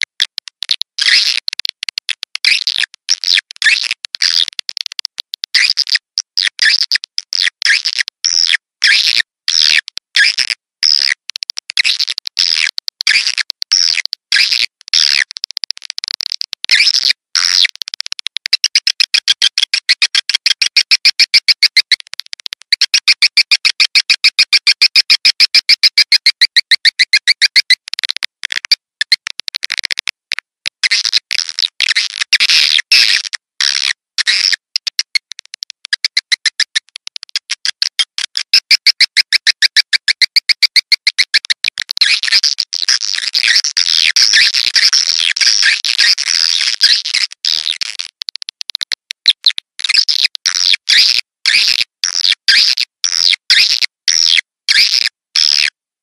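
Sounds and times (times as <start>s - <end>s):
fast bird trill: 23.0s - 27.8s.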